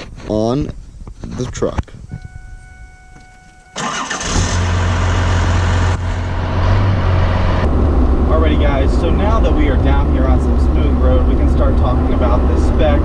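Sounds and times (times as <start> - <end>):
faint steady tone: 1.9 - 3.9
diesel engine idling: 3.7 - 13.0
starter motor cranking: 3.8 - 5.1.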